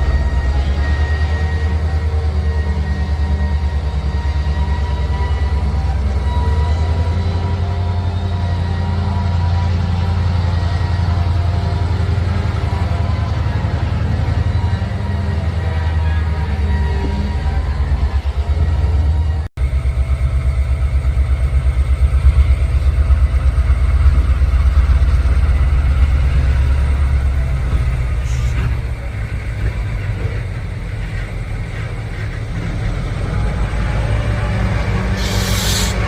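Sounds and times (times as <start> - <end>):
diesel locomotive engine throbbing: 0.0 - 36.0
short burst of hiss: 35.2 - 36.0.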